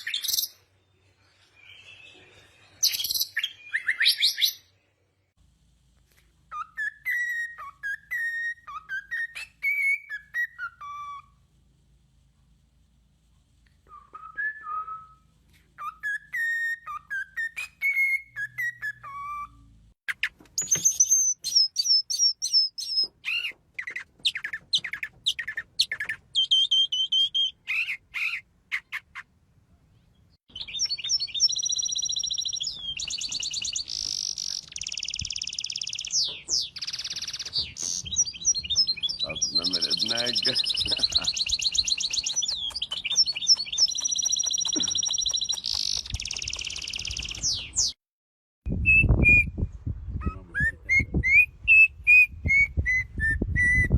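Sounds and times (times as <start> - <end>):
songbirds whistling phrases: 0.0 - 0.6, 1.6 - 4.7, 6.5 - 11.4, 13.9 - 29.2, 30.5 - 48.0, 48.7 - 53.9
rapid sharp bird chirps: 30.5 - 48.0
fast buzzy bird trills: 30.7 - 47.8.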